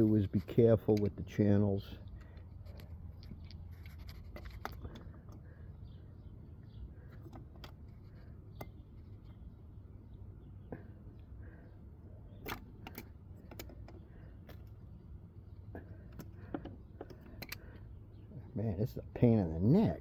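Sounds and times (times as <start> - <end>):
pliers scraping on metal filter: 16.0 - 17.8.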